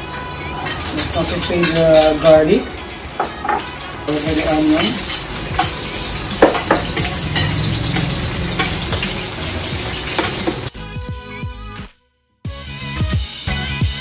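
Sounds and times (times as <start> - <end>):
background music: 0.0 - 14.0
onion sizzling in hot oil: 0.4 - 10.7
metal spoon scraping pot: 0.6 - 3.7, 4.4 - 10.7.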